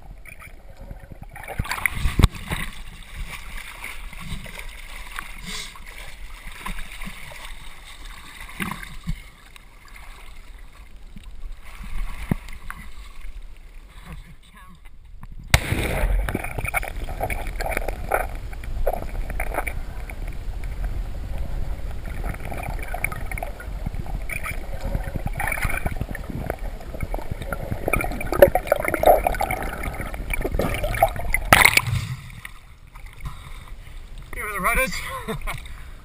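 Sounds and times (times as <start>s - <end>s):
water splash: 0.0s - 10.9s, 15.5s - 20.9s, 21.9s - 35.8s
muffled water gurgling underwater: 15.4s - 33.6s
bubbling: 15.4s - 35.8s.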